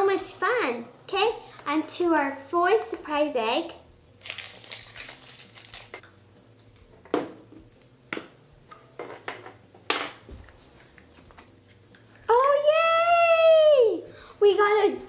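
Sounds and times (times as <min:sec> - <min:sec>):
chocolate shell cracking: 0:04.2 - 0:06.0
foil wrapper crinkling: 0:04.2 - 0:06.0.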